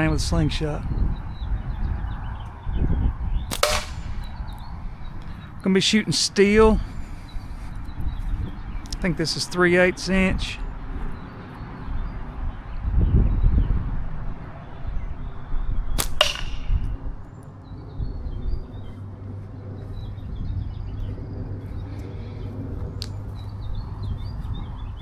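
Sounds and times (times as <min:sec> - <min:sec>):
birds chirping faintly: 0:00.0 - 0:25.0
ringing hit on target: 0:03.5 - 0:04.3, 0:16.0 - 0:17.0
slingshot bands snapping: 0:03.5 - 0:05.3, 0:16.0 - 0:16.9.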